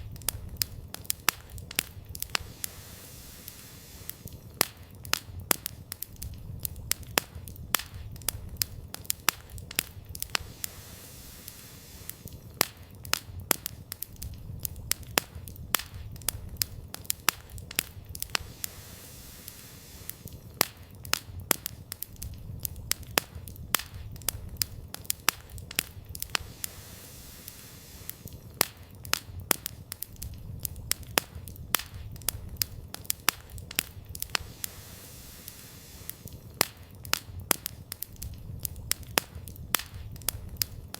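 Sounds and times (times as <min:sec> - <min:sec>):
campfire crackling and popping: 0:00.0 - 0:40.9
low fire rumble: 0:00.0 - 0:40.9.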